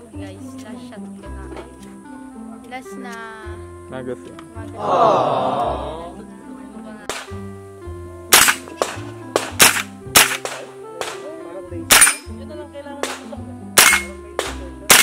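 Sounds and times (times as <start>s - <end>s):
background music: 0.0s - 15.0s
rifle shots: 7.1s - 7.3s, 8.3s - 11.3s, 11.9s - 12.3s, 13.0s - 15.0s.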